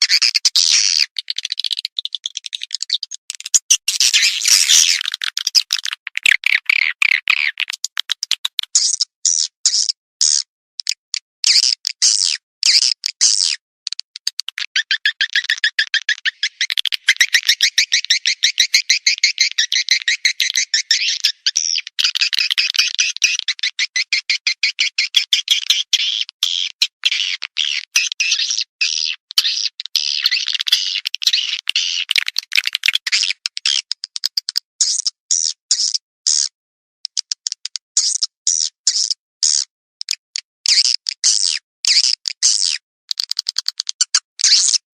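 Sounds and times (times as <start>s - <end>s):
quick clicks: 3.3s - 9.0s, 13.9s - 17.6s.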